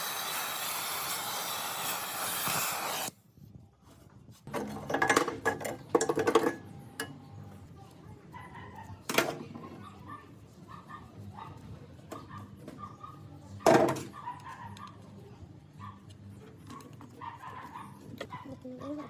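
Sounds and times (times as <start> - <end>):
steady hiss: 0.0 - 3.1.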